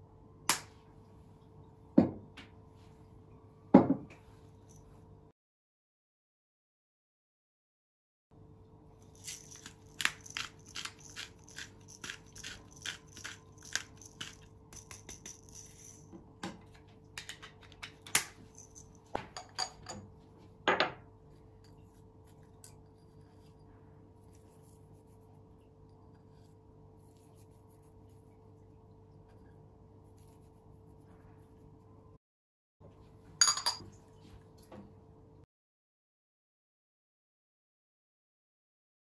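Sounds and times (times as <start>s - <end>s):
faint steady hum: 0.0s - 5.3s, 8.4s - 32.2s
peppercorns cracking in grinder: 9.0s - 16.0s.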